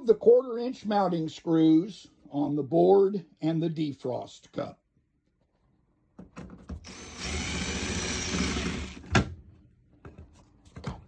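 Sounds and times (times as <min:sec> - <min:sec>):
cordless screw gun running: 0:06.8 - 0:09.0.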